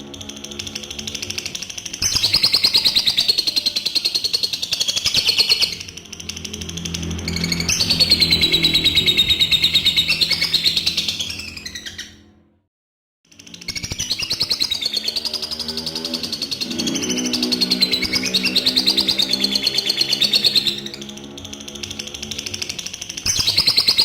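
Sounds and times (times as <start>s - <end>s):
lovebird chattering trills: 0.0s - 12.1s, 13.5s - 24.0s.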